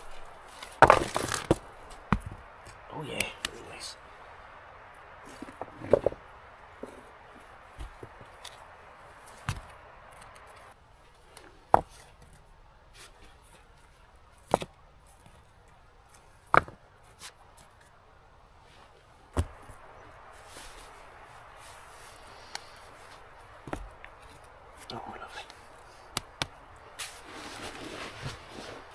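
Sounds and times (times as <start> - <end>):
wood chopping strikes: 0.6 - 2.4, 19.4 - 19.7, 26.1 - 26.6
faint hiss: 18.6 - 28.9.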